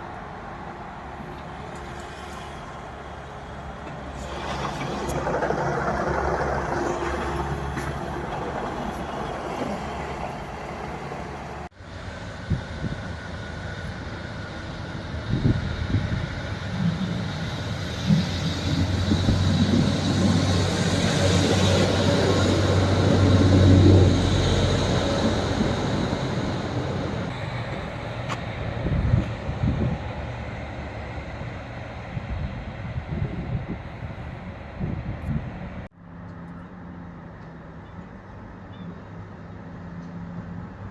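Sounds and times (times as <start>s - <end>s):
diesel train engine drone: 0.0s - 40.9s
wheels knocking over rail joints: 3.8s - 11.6s.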